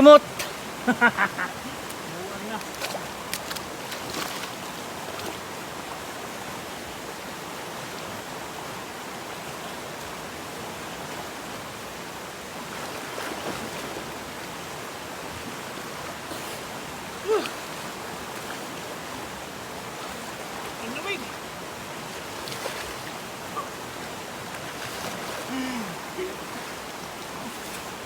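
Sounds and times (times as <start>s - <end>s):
river flowing over rocks: 0.0s - 28.0s
brief vocal cry: 17.2s - 17.6s, 25.5s - 26.6s.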